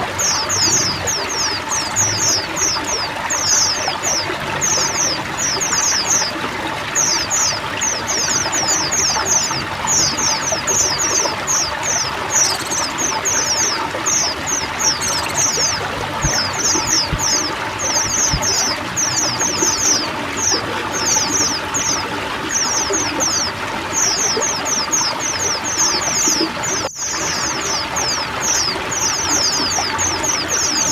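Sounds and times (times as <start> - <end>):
birds chattering high notes: 0.0 - 30.9
water pouring and trickling: 0.0 - 30.9.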